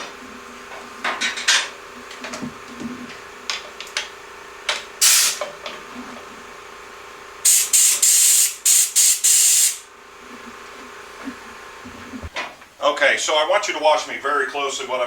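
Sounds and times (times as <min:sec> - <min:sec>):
spray hissing in bursts: 0:05.0 - 0:05.4, 0:07.5 - 0:09.8.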